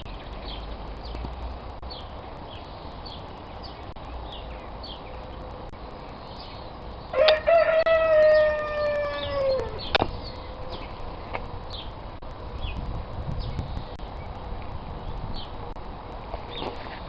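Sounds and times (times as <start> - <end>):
small birds chirping: 0.0 - 17.0
rooster crowing: 7.1 - 9.9.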